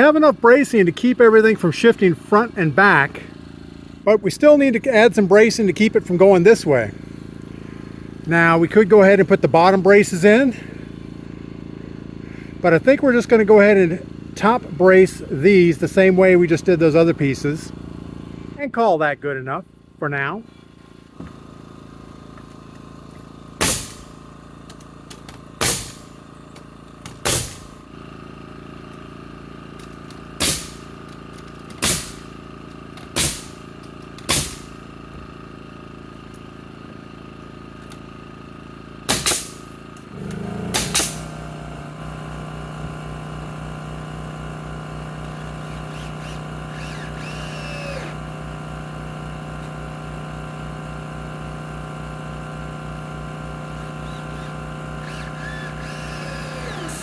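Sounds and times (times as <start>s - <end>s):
steady motor hum: 0.0s - 18.8s, 19.5s - 57.0s
nail gun shots: 23.6s - 24.2s, 25.6s - 26.2s, 27.0s - 27.8s, 30.4s - 30.9s, 31.7s - 32.4s, 33.0s - 33.6s, 34.2s - 34.9s, 39.0s - 41.4s, 54.1s - 57.0s
motor droning: 40.0s - 50.6s, 52.0s - 57.0s.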